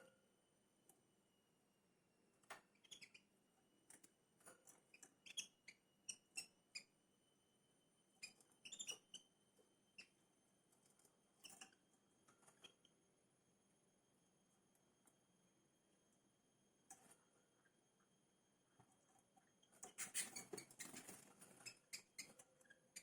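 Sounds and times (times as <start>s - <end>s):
small birds chirping: 2.4s - 3.3s, 3.9s - 7.0s, 8.1s - 13.0s, 19.4s - 23.0s
faint steady high whine: 5.5s - 19.8s.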